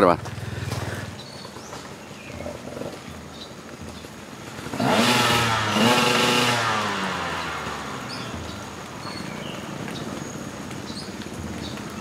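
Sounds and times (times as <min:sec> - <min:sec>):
dirt bike engine revving: 0:04.5 - 0:09.7.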